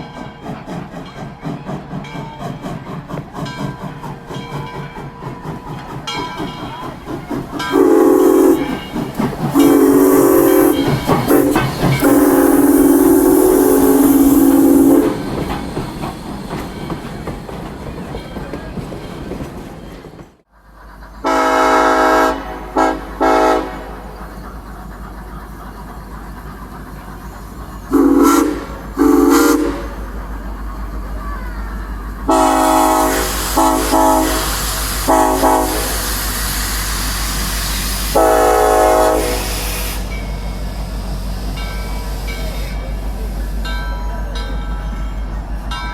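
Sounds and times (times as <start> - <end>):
hissing: 5.6 - 16.7
locomotive horn blasts: 7.7 - 8.8, 9.5 - 15.2, 21.2 - 24.1, 27.9 - 30.0, 32.3 - 36.1, 38.0 - 40.1.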